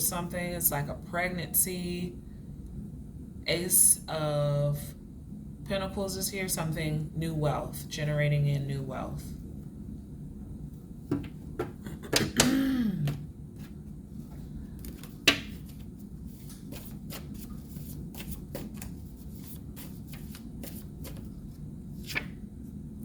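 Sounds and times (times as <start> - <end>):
cards shuffling and clicking: 14.8 - 21.4.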